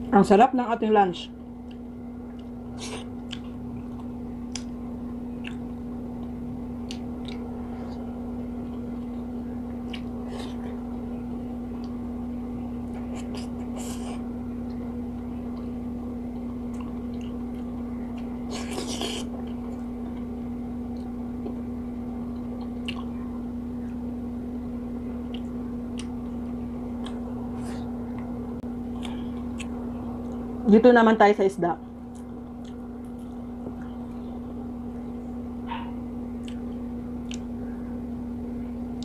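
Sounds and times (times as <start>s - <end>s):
steady low hum: 0.0s - 39.0s
person chewing food: 1.6s - 4.7s, 5.3s - 11.0s, 12.8s - 24.0s, 25.1s - 28.3s, 28.9s - 30.5s, 32.1s - 34.4s, 35.0s - 37.6s.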